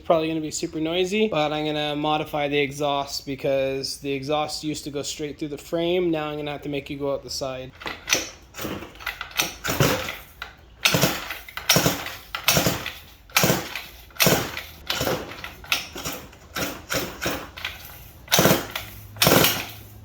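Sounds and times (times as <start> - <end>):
recoil starter cord whirring: 7.8 - 20.0.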